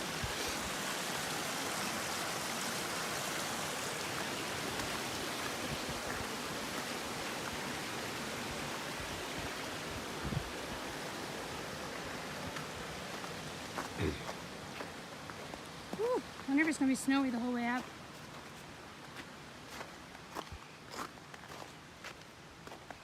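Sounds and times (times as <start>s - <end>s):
rushing brook: 0.0s - 23.0s.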